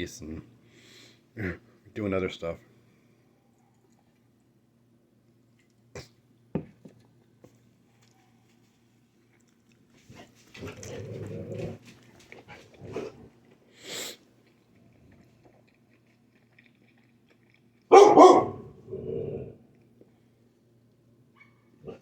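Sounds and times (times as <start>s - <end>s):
dog barking: 17.9s - 18.8s.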